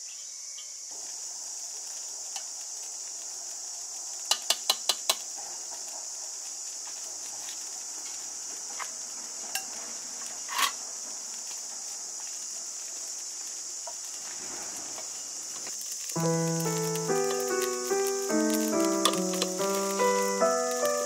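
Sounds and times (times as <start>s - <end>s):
high-pitched insect drone: 0.0s - 21.0s
piano music: 16.2s - 21.0s.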